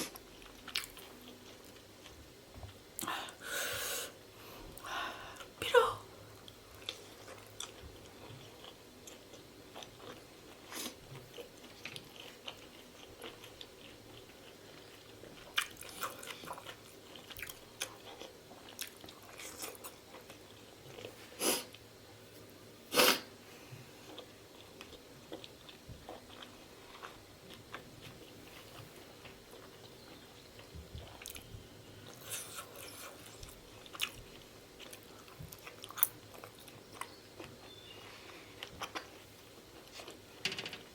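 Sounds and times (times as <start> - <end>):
wet chewing mouth sounds: 6.4 - 21.8.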